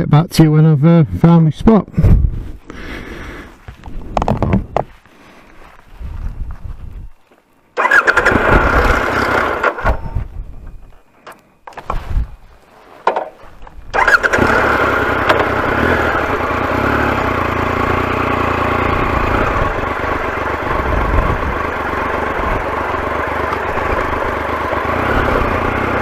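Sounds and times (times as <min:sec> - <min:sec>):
motorcycle engine starting and running: 0:07.8 - 0:11.0, 0:13.0 - 0:26.0.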